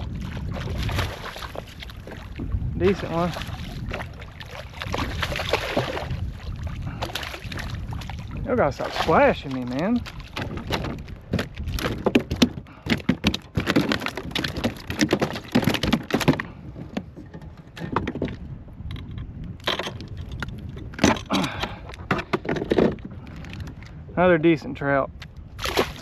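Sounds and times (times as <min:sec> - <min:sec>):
fish splashing: 0:00.0 - 0:02.4, 0:03.0 - 0:12.0, 0:25.6 - 0:26.0
sharp rattling knocks: 0:10.4 - 0:18.4.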